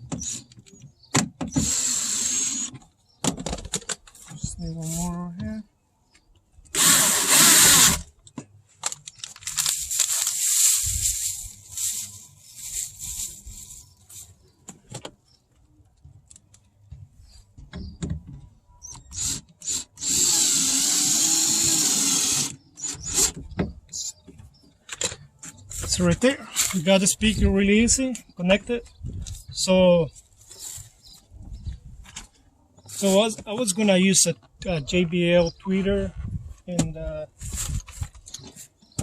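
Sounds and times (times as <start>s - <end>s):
power drill driving screw: 1.5s - 2.7s, 6.7s - 8.1s, 19.1s - 23.4s.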